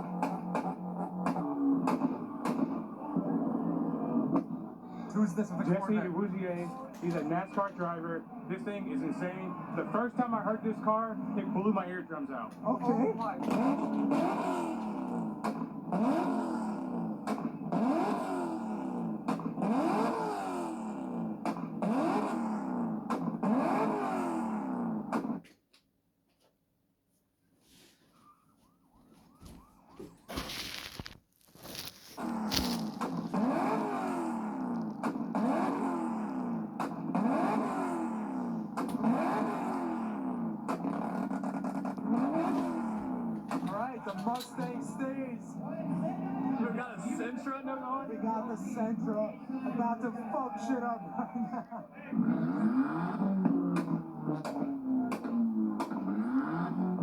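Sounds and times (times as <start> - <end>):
car engine revving hard: 0.0 - 25.4, 31.6 - 47.2, 52.1 - 57.0.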